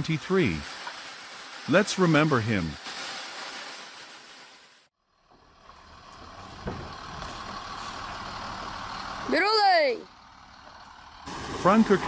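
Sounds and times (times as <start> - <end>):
steady hiss: 0.0 - 4.9
heavy vehicle engine running: 5.0 - 12.0.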